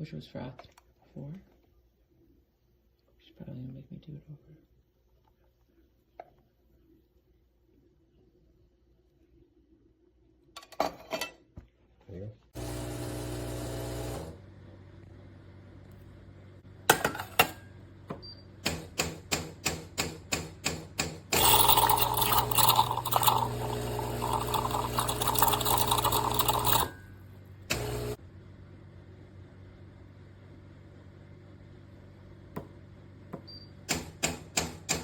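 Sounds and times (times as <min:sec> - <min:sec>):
espresso machine hum: 0:12.6 - 0:16.6, 0:21.4 - 0:32.3
espresso machine clicking: 0:21.4 - 0:26.9
loud mechanical whirring: 0:27.7 - 0:28.2.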